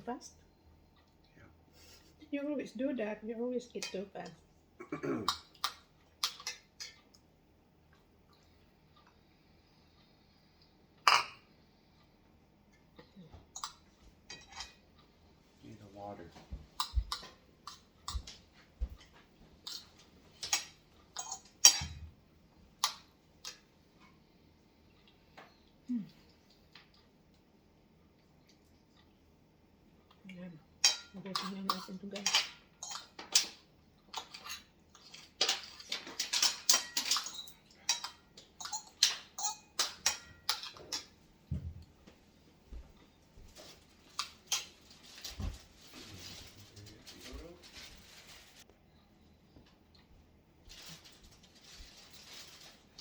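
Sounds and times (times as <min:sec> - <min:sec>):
cutlery clinking against dishes: 0:13.6 - 0:14.9, 0:19.7 - 0:22.1, 0:30.8 - 0:41.2.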